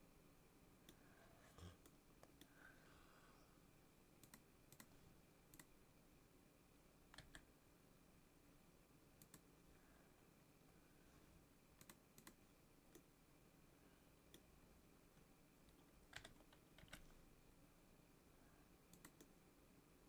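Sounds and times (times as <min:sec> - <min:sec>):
low room hum: 0:00.0 - 0:20.0
keyboard and mouse clicks: 0:04.2 - 0:05.7, 0:07.1 - 0:07.5, 0:09.2 - 0:09.5, 0:11.8 - 0:13.1, 0:15.7 - 0:17.1, 0:18.9 - 0:19.4.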